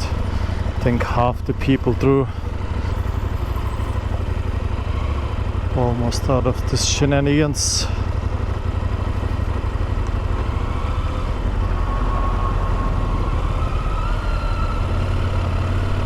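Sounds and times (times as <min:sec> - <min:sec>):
motorcycle engine rumbling: 0:00.0 - 0:16.0
faint rising whine: 0:10.4 - 0:16.0.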